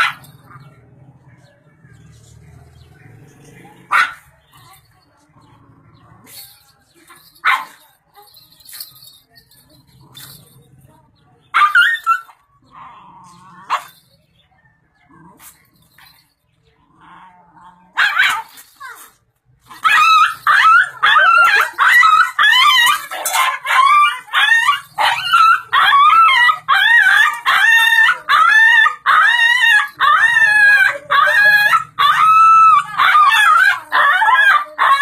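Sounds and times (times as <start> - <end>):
dog yelping and whining: 11.5 - 12.4, 18.0 - 35.0.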